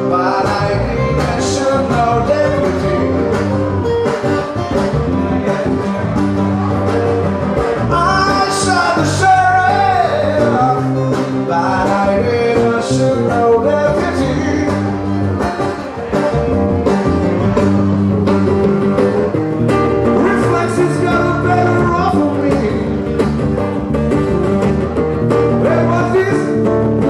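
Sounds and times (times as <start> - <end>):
person singing: 0.0 - 6.9, 7.6 - 16.3, 20.2 - 23.1
bass: 0.0 - 27.0
guitar: 0.0 - 27.0.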